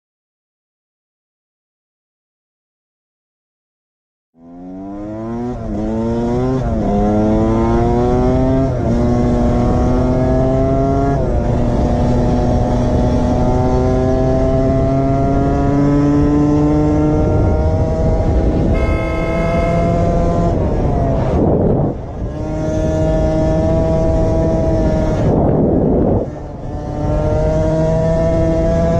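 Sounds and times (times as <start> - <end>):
motorcycle engine accelerating: 4.4 - 28.9
steady high tone: 18.7 - 20.6.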